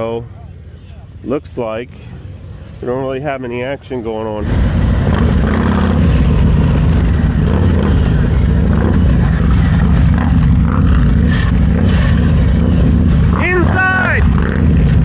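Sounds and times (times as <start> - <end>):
motorcycle engine running: 4.4 - 15.0.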